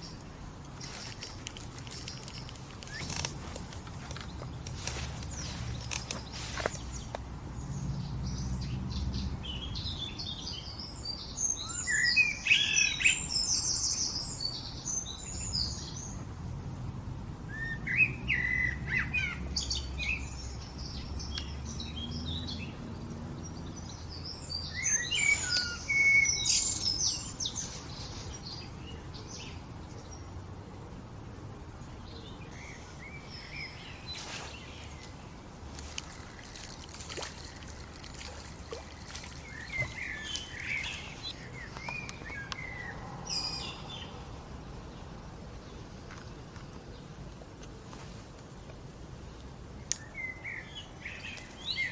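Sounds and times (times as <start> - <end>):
songbird warbling: 24.5 - 28.7, 35.8 - 44.1.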